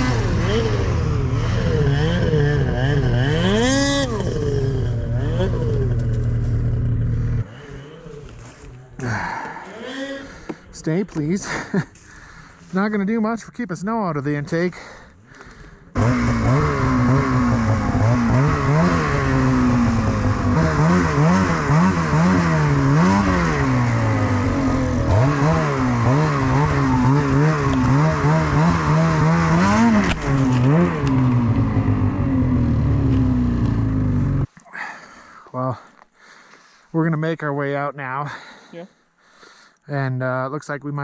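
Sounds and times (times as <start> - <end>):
snowmobile engine revving: 0.0 - 12.9, 15.3 - 34.5.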